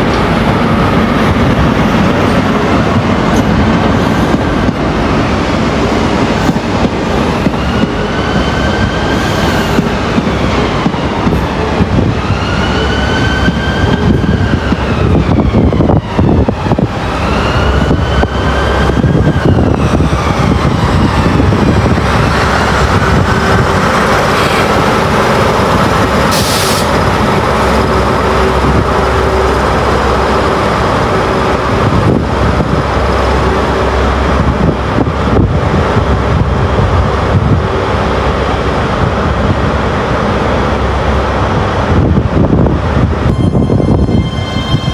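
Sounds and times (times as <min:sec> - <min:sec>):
train steady whine: 0:00.0 - 0:44.9
train wheels squealing: 0:43.3 - 0:44.9.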